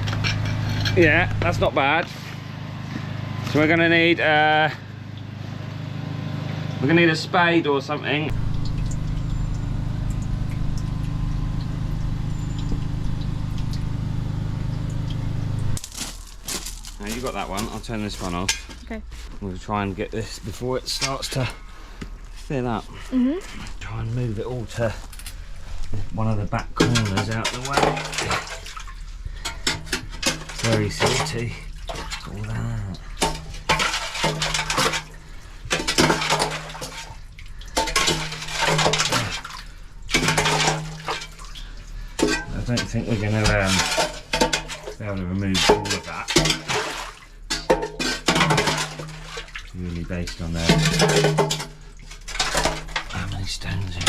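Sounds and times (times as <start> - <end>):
metal spade scraping wet stony silt: 0.0 - 2.4, 26.8 - 32.4, 33.2 - 41.5, 42.1 - 53.3
drain-clearing machine engine running: 0.0 - 54.0.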